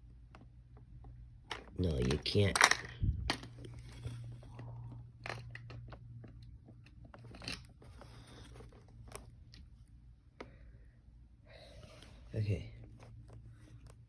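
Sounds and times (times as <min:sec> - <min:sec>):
faint low hum: 0:00.0 - 0:14.0
plastic toy clicks and crackles: 0:01.5 - 0:03.5.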